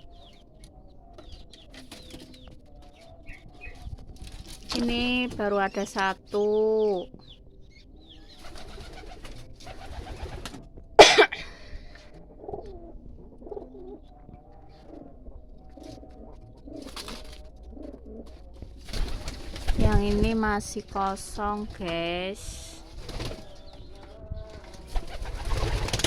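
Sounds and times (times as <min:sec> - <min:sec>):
pigeons cooing: 0:07.0 - 0:20.0, 0:22.4 - 0:26.0.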